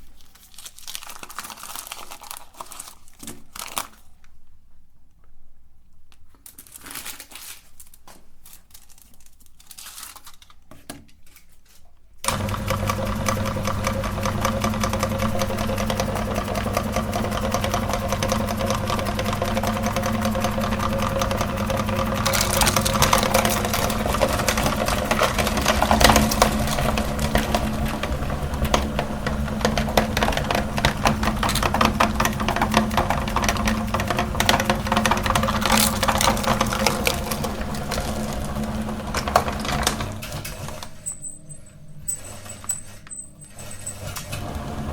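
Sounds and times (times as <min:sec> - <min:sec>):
faint handling sounds: 0:00.0 - 0:12.2
meat grinder motor hum: 0:12.3 - 0:41.0, 0:43.8 - 0:44.9
rough grinding: 0:18.2 - 0:40.2.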